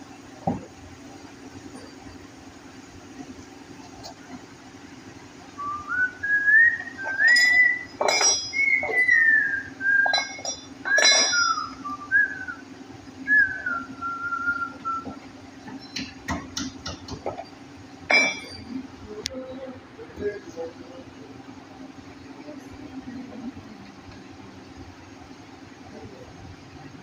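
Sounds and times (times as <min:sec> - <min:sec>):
steady low hum: 0:00.0 - 0:27.0
sharp metallic clinks: 0:07.1 - 0:09.2, 0:10.0 - 0:11.7, 0:18.1 - 0:18.8
person whistling a tune: 0:08.5 - 0:10.3, 0:10.9 - 0:12.6, 0:13.3 - 0:15.2.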